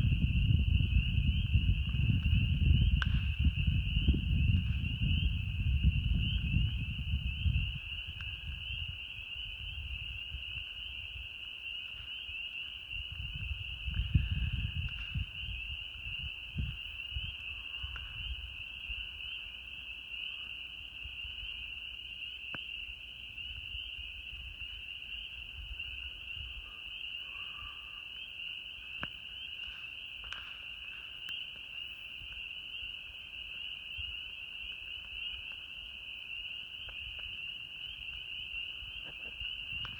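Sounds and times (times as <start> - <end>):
frogs calling: 0.0 - 39.9
campfire pops: 2.8 - 3.6.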